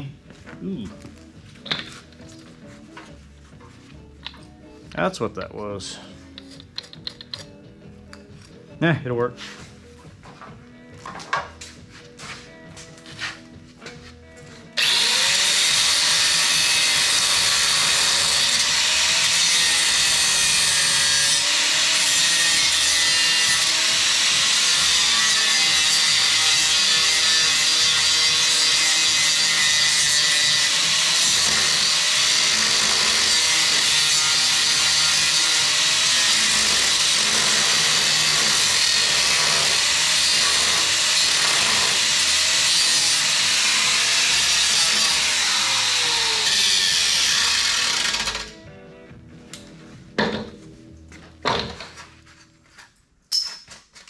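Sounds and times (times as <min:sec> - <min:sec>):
power tool cutting steel: 0:14.8 - 0:48.6.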